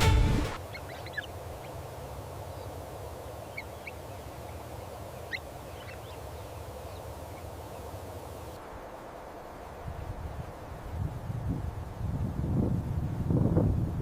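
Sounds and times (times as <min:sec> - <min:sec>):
bird calls: 0:03.4 - 0:07.5.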